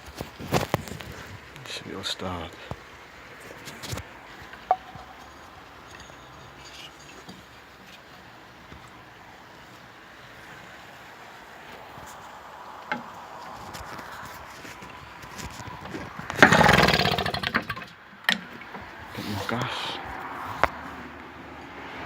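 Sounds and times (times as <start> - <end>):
outboard motor running: 16.4 - 17.9.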